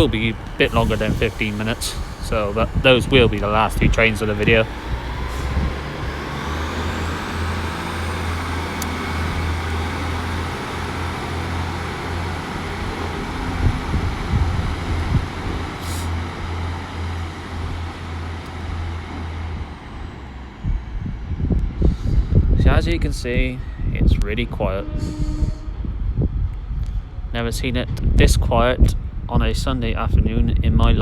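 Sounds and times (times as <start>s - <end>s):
high whine: 0.0s - 21.7s
diesel train engine: 0.0s - 30.2s.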